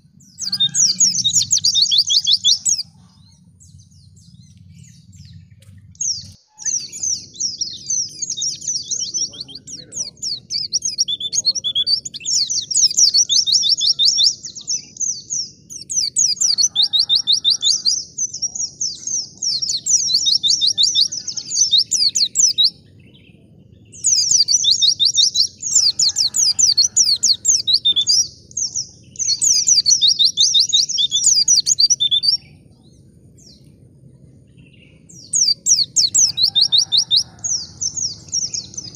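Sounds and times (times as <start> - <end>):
bird singing high twittering trills: 0.0 - 38.9
faint low hum: 2.3 - 11.0.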